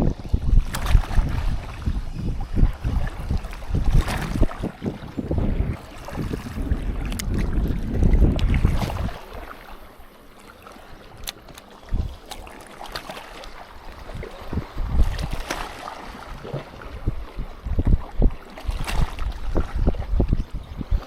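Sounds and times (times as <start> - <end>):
wind buffeting microphone: 0.0 - 10.0, 11.2 - 12.4, 13.4 - 21.0
small clicks: 11.2 - 11.7.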